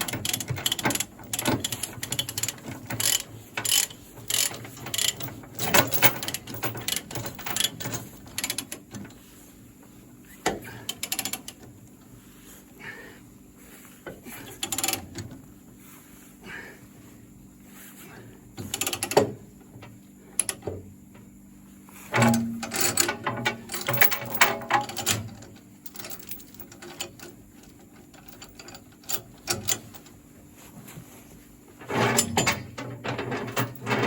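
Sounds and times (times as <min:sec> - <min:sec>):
ratchet pawl clicks: 0:00.2 - 0:05.2.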